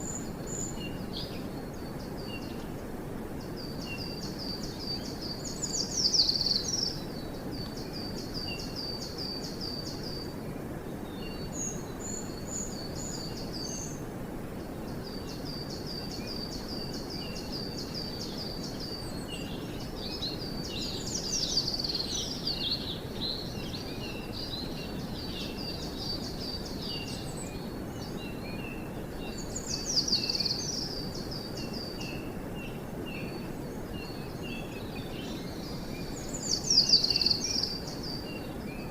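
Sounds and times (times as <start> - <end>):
forest background hiss: 0.0 - 38.9
songbirds singing: 0.0 - 38.9.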